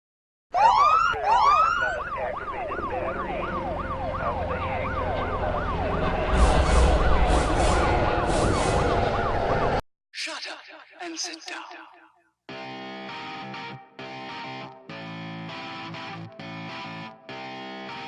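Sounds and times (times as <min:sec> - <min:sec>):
police siren wailing and yelping: 0:00.5 - 0:09.8
low vehicle rumble: 0:01.0 - 0:09.8.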